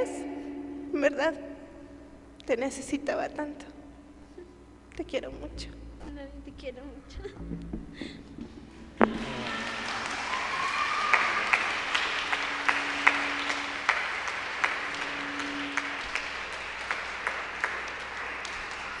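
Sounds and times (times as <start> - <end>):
audience applauding: 9.0 - 19.0
sharp individual claps: 9.0 - 19.0.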